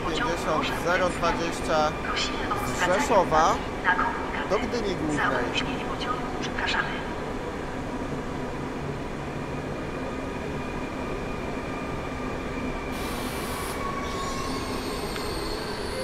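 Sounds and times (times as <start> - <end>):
faint high whining tones: 9.3 - 16.0.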